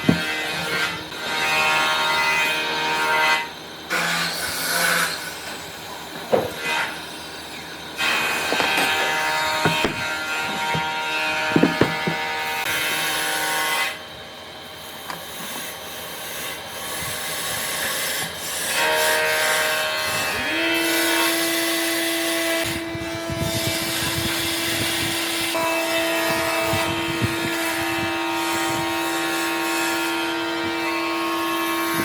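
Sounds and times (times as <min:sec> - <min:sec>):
power tool motor running: 0:03.9 - 0:13.3
rubbing and scraping wood: 0:08.1 - 0:12.8.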